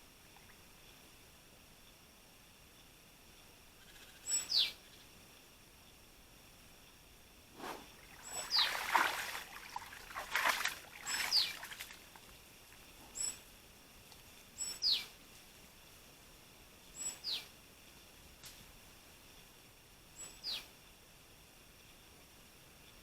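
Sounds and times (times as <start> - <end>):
bird calling: 8.0 - 9.6, 10.3 - 11.9.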